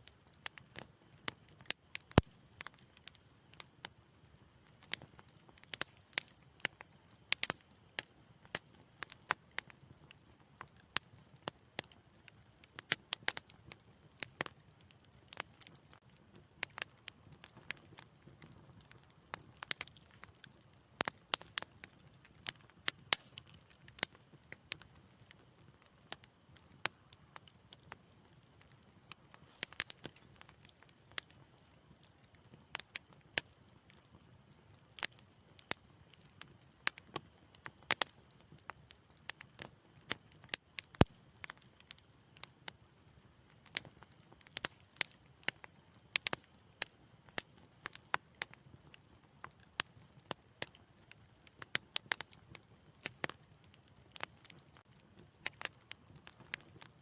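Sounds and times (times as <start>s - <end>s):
faint hiss of flames: 0.0s - 57.0s
wood fire crackling and popping: 0.0s - 57.0s.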